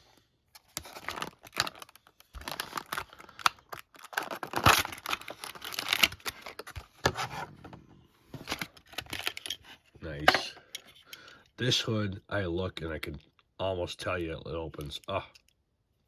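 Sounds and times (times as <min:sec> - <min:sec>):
plastic packaging crinkling: 0:00.5 - 0:07.1.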